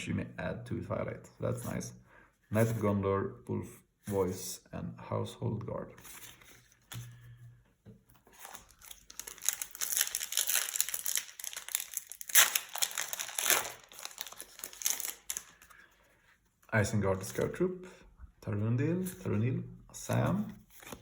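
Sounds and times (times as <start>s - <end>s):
plastic wrapper crinkling and tearing: 8.3s - 15.7s.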